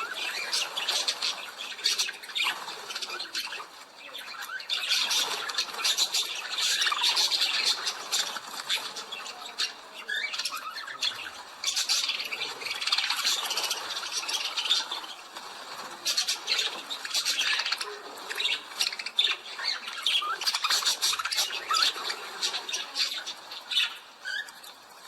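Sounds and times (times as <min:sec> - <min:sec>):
birds squawking and chattering: 0:00.0 - 0:25.0.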